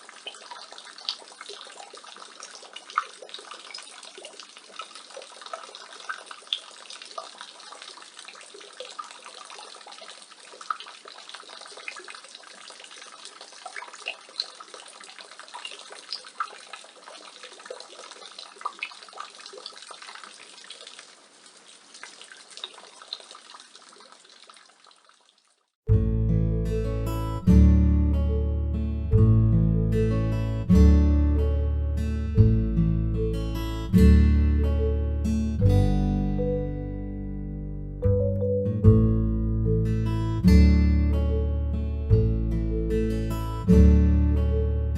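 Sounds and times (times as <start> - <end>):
rainwater splashing from gutter: 0.0 - 25.8.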